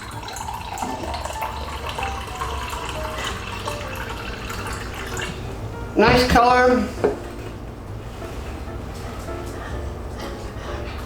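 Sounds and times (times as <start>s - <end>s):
liquid pouring: 0.0s - 7.7s.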